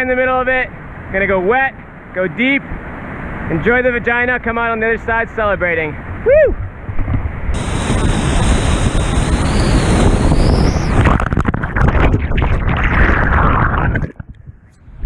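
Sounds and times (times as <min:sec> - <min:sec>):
wind buffeting microphone: 0:06.0 - 0:15.0
whitewater rushing and crashing: 0:07.6 - 0:10.8
heavy water splashing: 0:07.6 - 0:14.3.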